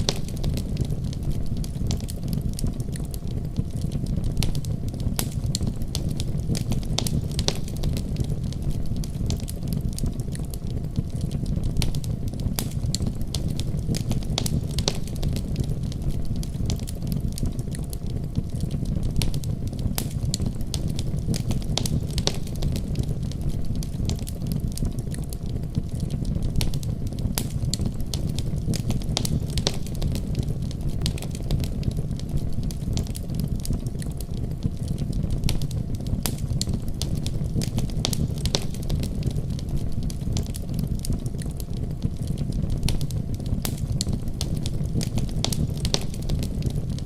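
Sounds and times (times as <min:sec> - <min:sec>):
wood fire crackling and popping: 0:00.0 - 0:47.0.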